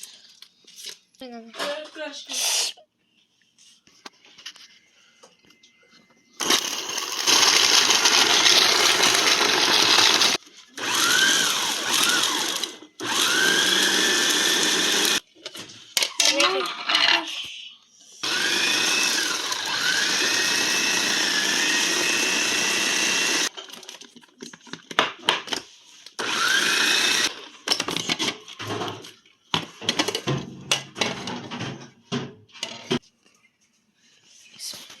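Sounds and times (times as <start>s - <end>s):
electric mixer whining: 6.4s - 15.2s, 18.2s - 23.5s, 26.2s - 27.4s.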